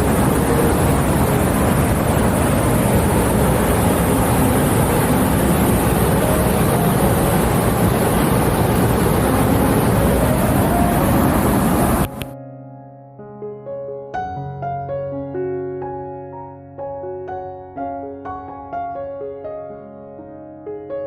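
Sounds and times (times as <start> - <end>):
waterfall roaring: 0.0 - 12.2.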